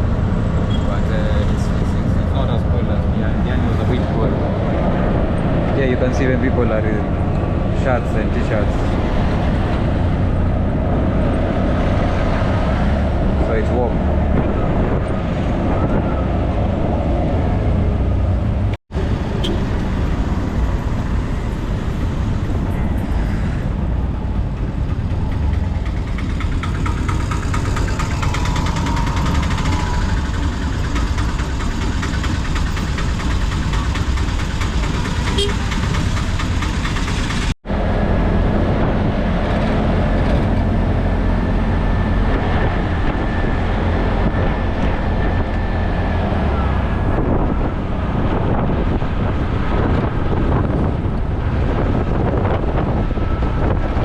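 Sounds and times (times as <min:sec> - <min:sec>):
rickshaw engine and road noise: 0:00.0 - 0:54.0.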